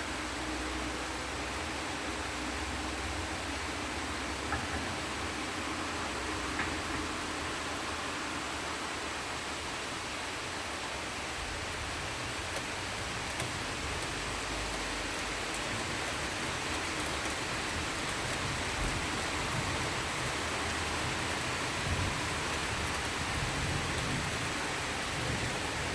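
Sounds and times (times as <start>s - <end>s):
heavy rain hissing: 0.0s - 25.9s
raindrop ticks: 12.3s - 20.3s.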